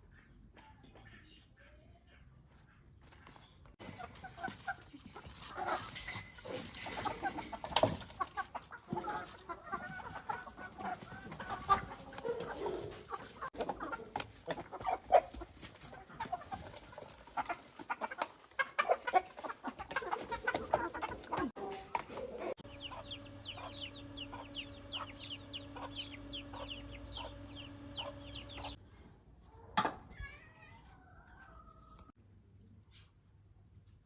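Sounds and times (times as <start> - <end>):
chickens clucking: 3.8 - 28.8.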